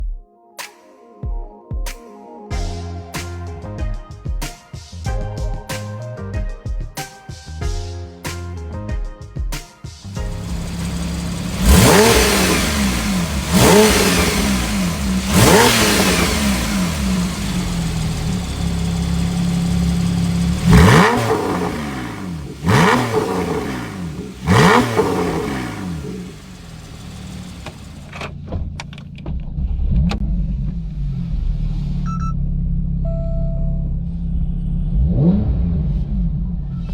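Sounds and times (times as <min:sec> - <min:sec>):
exhaust crackles: 0:10.2 - 0:32.0
sports car engine idling and revving: 0:10.2 - 0:36.9.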